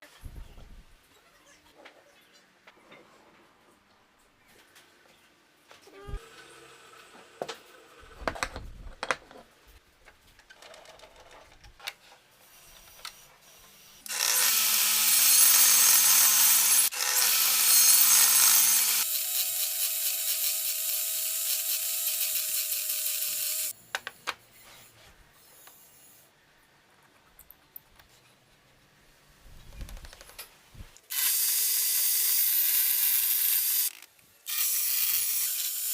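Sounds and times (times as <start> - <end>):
woodworking power tool running: 14.1 - 19.0.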